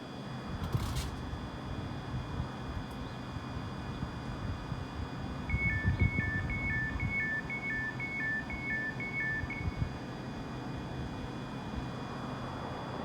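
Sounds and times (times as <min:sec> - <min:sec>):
two-tone warning beeps: 0:05.5 - 0:09.9.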